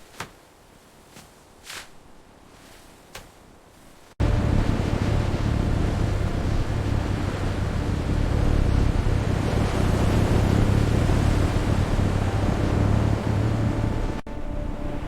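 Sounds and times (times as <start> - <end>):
low constant rumble: 0.0 - 15.0
storm wind roaring: 4.2 - 15.0.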